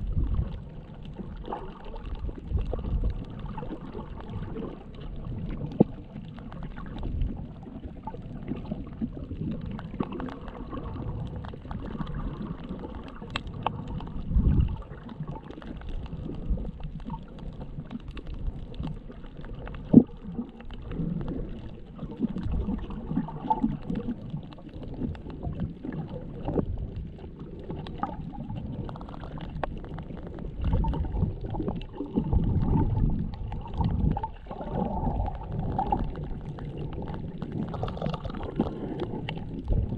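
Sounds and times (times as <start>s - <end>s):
muffled underwater sloshing: 0.0s - 39.9s
faint clicks: 9.6s - 14.2s.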